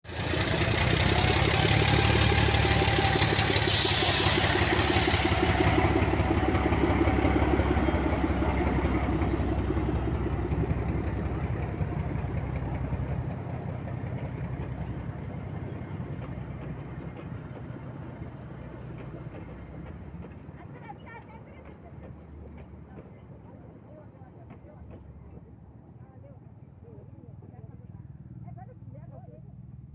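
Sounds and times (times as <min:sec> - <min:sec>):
diesel locomotive engine running: 0:00.0 - 0:29.9
brief hiss: 0:03.7 - 0:06.6.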